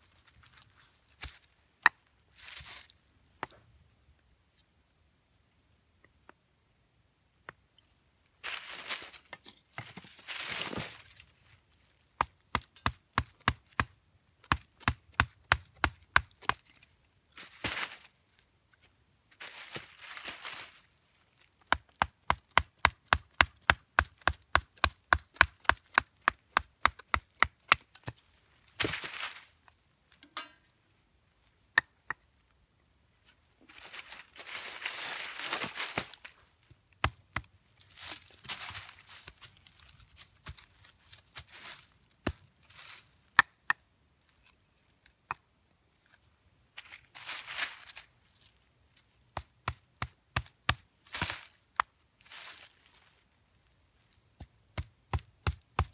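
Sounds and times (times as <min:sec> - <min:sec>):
rustling: 0:19.3 - 0:21.5, 0:28.0 - 0:30.2, 0:33.2 - 0:36.7.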